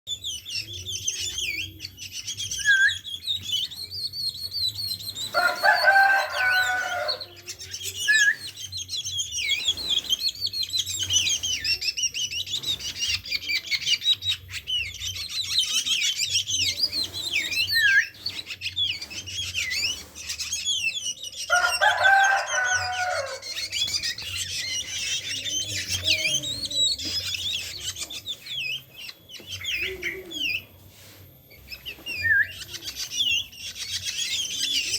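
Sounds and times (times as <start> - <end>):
drongo chirping and calling: 0.1 - 34.9
rooster crowing: 5.3 - 7.4, 21.5 - 23.7.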